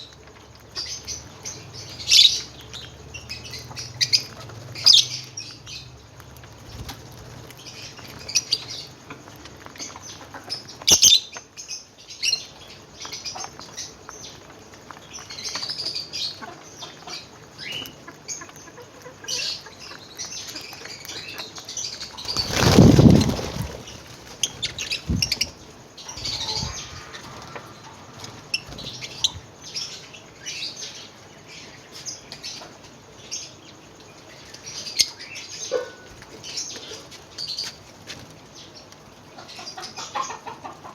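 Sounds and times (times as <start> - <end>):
lovebirds chirping: 0.0 - 37.8
loud rustling burst: 22.2 - 25.6.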